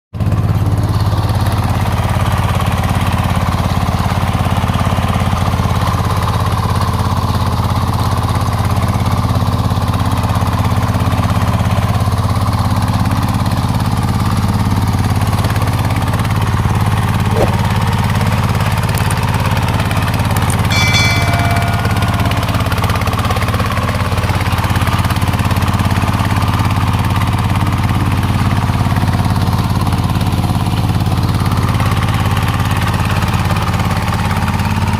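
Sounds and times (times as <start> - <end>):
diesel engine chugging: 0.2 - 34.9
brief high-pitched tone: 20.5 - 23.7.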